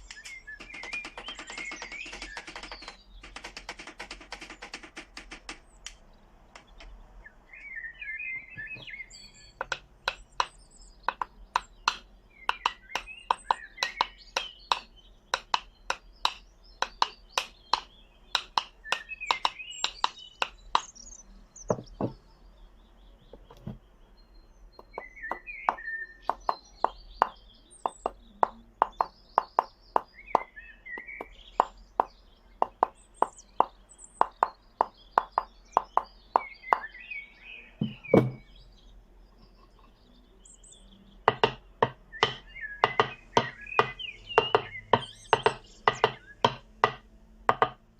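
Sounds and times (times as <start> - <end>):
birds chirping: 0.0 - 47.9
sharp knocks: 0.6 - 5.7, 9.6 - 20.9, 21.7 - 22.2, 24.8 - 36.9, 37.8 - 38.5, 41.3 - 47.9.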